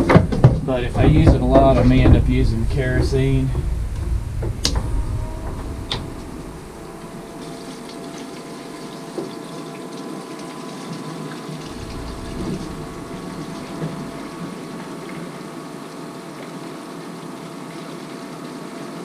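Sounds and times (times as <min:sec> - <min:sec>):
electric fuel pump humming: 0:00.0 - 0:15.6
fuel pouring into tank: 0:07.0 - 0:17.0.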